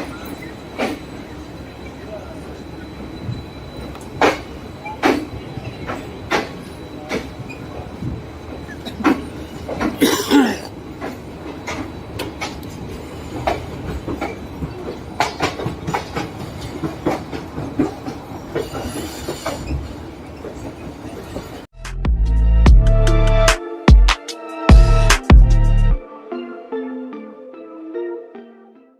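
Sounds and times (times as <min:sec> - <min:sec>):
train rumble: 0:00.0 - 0:21.7
train wheels clacking on rail joints: 0:03.2 - 0:10.2, 0:10.8 - 0:21.7.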